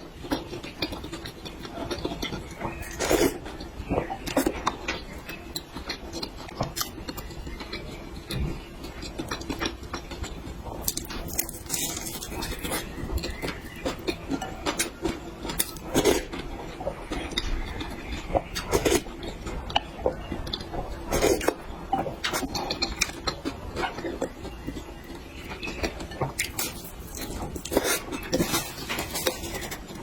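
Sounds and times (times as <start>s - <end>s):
chewing and mouth noises: 0.0s - 30.0s.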